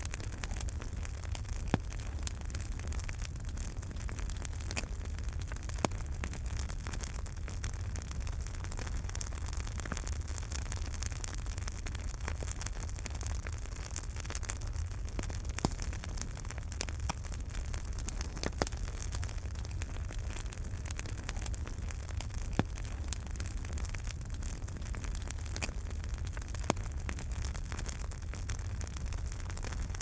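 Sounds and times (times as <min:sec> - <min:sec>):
wood fire crackling: 0:00.0 - 0:30.0
sharp pops and snaps: 0:00.2 - 0:02.7, 0:12.2 - 0:24.0.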